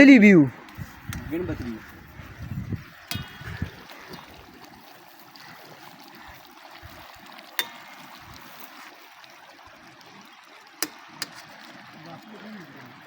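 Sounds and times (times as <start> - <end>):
flowing water: 0.0 - 13.0.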